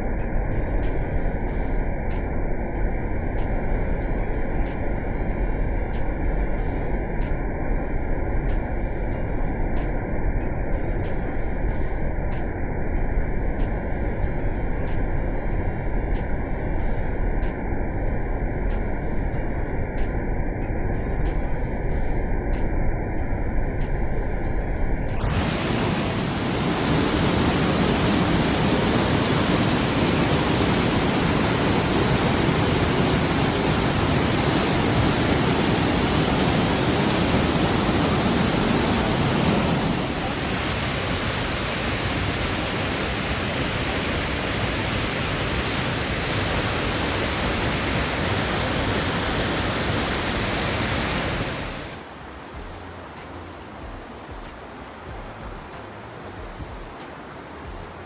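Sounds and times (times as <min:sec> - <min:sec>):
waterfall rushing: 0:25.2 - 0:53.8.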